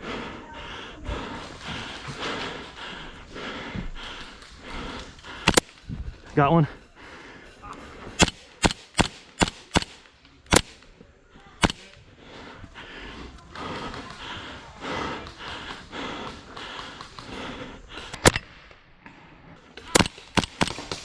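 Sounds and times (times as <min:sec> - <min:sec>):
airsoft gun shots: 0:05.5 - 0:05.8, 0:08.2 - 0:10.8, 0:11.6 - 0:12.0, 0:19.9 - 0:21.0.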